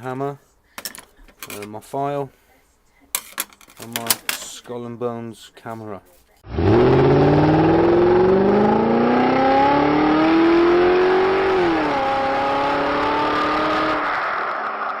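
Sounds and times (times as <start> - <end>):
car engine accelerating: 6.5 - 15.0.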